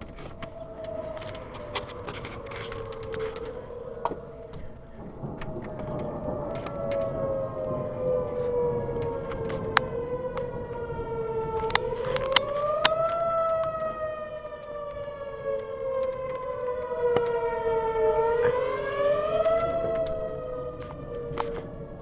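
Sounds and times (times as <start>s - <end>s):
warning siren wailing: 0.0s - 22.0s
sharp clicks: 11.4s - 14.0s, 14.6s - 17.4s.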